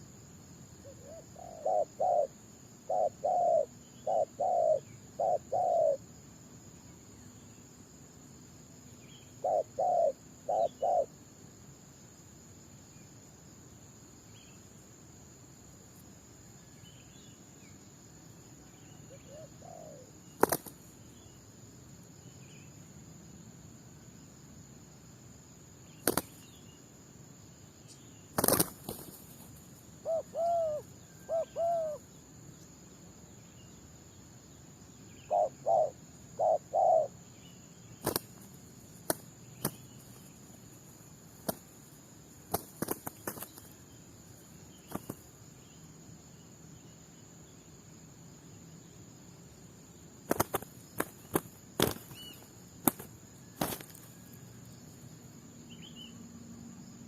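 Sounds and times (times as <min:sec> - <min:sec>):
high insect trill: 0:00.0 - 0:57.0
doves cooing: 0:00.8 - 0:06.0, 0:09.4 - 0:11.1, 0:19.1 - 0:20.7, 0:30.0 - 0:32.0, 0:35.3 - 0:37.1.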